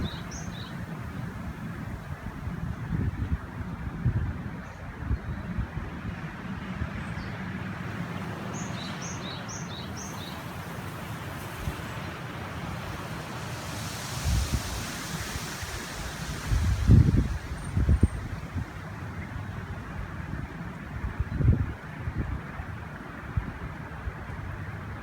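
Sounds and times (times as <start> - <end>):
river rushing: 0.0 - 2.6, 7.7 - 19.7
wind: 0.0 - 25.0
wind buffeting microphone: 0.0 - 25.0.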